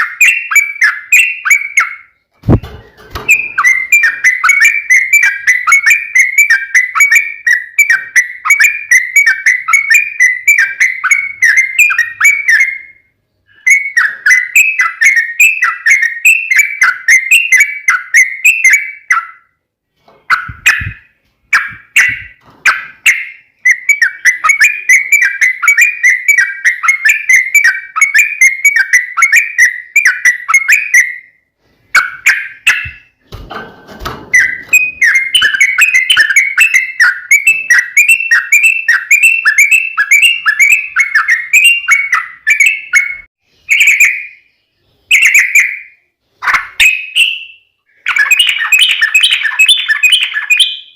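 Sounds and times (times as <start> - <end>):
bird singing whistled notes: 0.0 - 2.6, 3.2 - 19.6, 20.3 - 33.2, 34.3 - 46.0, 46.7 - 50.9.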